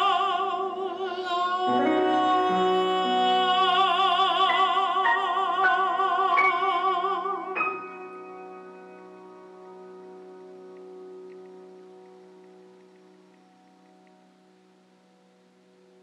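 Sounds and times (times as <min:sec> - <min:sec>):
person singing long note: 0:00.0 - 0:09.0.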